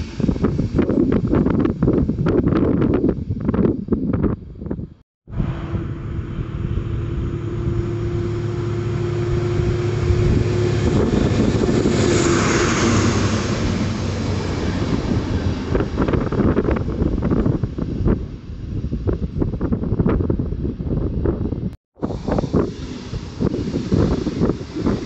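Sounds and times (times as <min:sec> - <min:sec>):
train passing: 0:00.0 - 0:02.9, 0:05.3 - 0:19.1, 0:22.0 - 0:25.0
wind buffeting microphone: 0:00.0 - 0:25.0.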